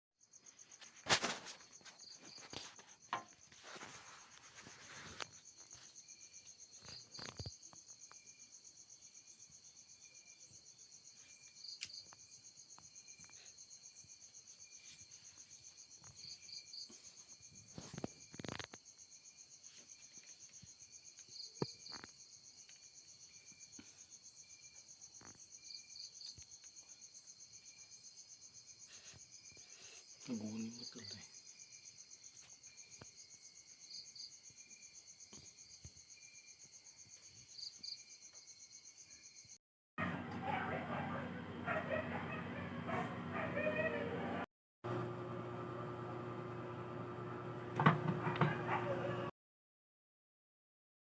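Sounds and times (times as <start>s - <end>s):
crickets chirping: 0.2s - 39.6s.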